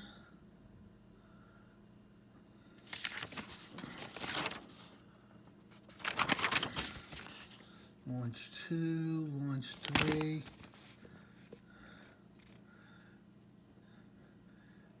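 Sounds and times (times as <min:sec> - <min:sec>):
plastic crinkling: 0:02.9 - 0:04.9, 0:05.8 - 0:07.6, 0:09.7 - 0:11.0.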